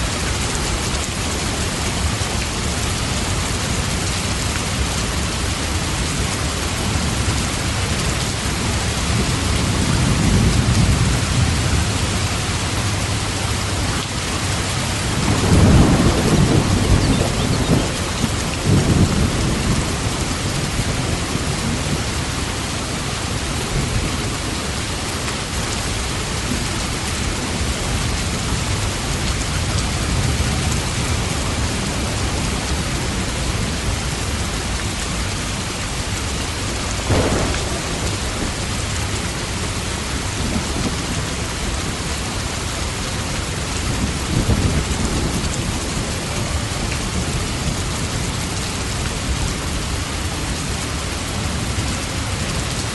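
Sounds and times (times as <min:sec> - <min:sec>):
steady rain: 0:00.0 - 0:52.9
thunder rumbling: 0:08.8 - 0:25.1, 0:36.9 - 0:50.0.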